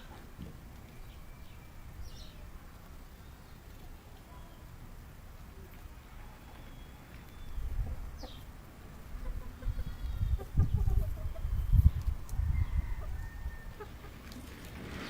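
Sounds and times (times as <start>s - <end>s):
chickens clucking softly: 5.6s - 14.6s.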